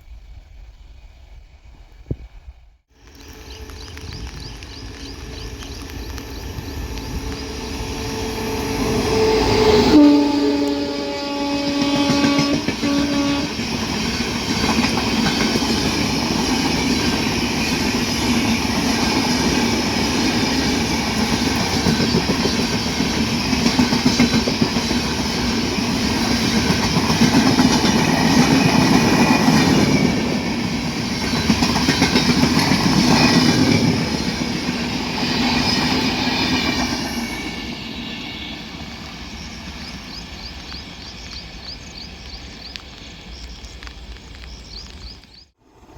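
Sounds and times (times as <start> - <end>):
train horn: 6.8 - 13.8.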